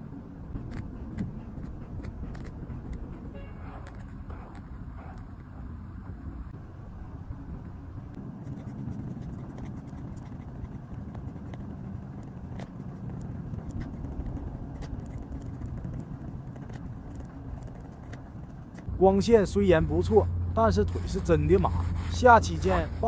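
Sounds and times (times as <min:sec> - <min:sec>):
low rumble: 0:00.0 - 0:23.0
paper clicks and scrapes: 0:00.6 - 0:05.3, 0:08.4 - 0:18.9.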